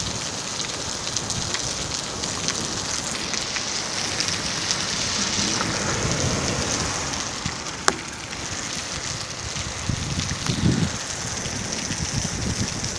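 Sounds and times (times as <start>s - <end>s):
rain falling: 0.0s - 12.9s
low rumble: 3.3s - 9.9s.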